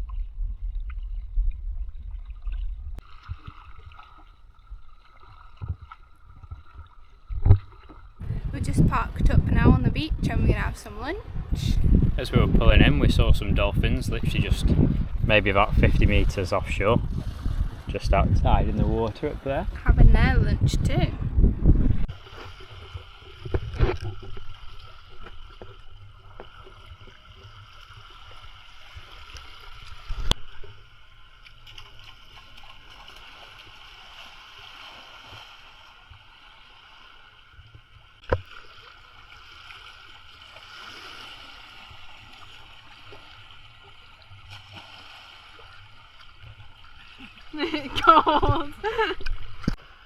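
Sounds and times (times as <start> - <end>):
water lapping and gurgling: 0.0 - 50.0.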